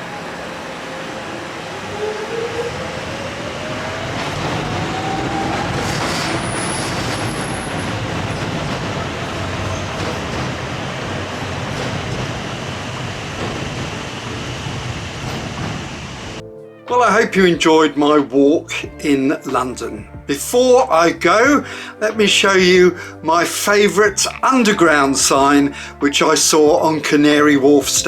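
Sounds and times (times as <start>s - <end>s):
high squeals: 0.0s - 11.9s
wheels rumbling on track: 0.0s - 16.4s.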